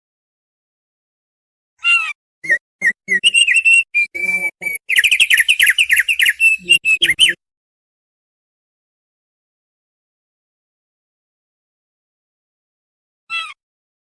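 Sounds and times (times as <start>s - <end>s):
bird whistling song: 2.4s - 7.4s.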